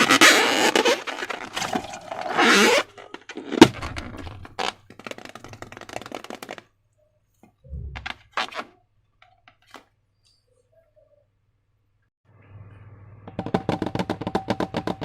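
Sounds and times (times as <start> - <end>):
soft low thump: 7.7 - 8.3.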